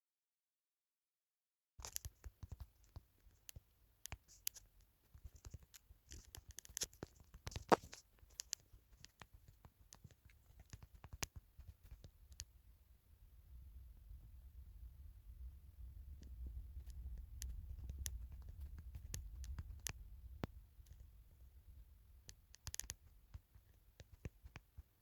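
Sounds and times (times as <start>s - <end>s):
small handling clicks and scratches: 1.8s - 12.5s, 16.2s - 21.1s, 22.2s - 25.0s.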